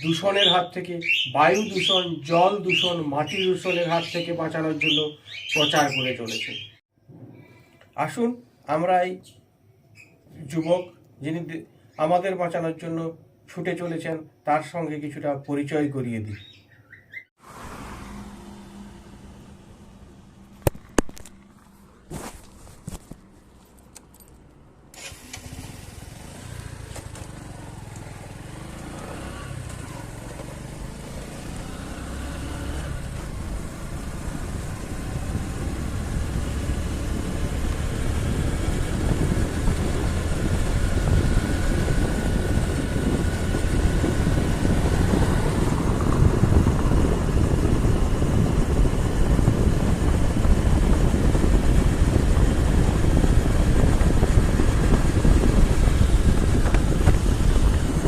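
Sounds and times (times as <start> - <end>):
vehicle engine and road noise: 17.4 - 58.0.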